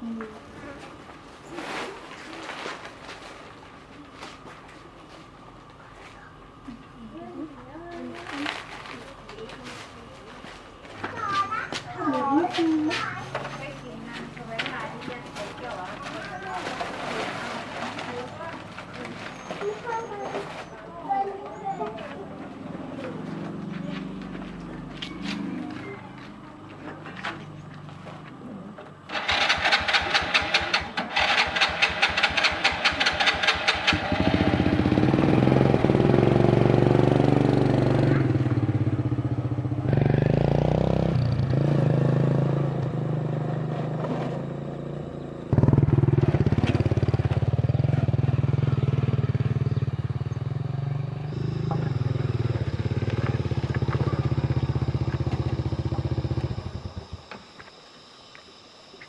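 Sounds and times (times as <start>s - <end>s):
small engine running: 29.1s - 59.0s.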